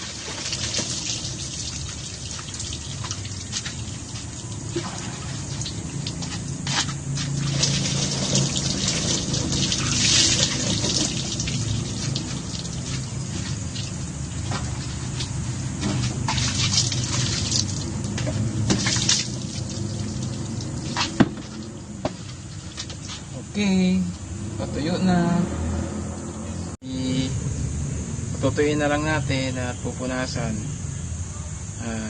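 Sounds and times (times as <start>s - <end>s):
water splashing and dripping: 0.0s - 23.3s.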